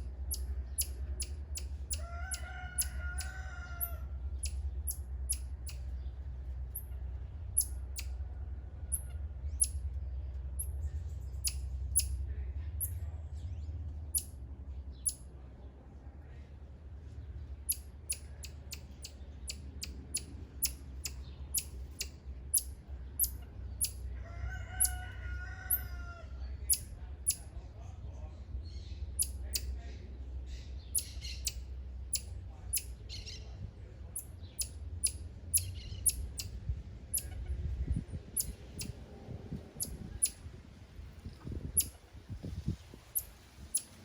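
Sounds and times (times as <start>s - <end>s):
rooster crowing: 1.9s - 4.2s, 24.1s - 26.5s.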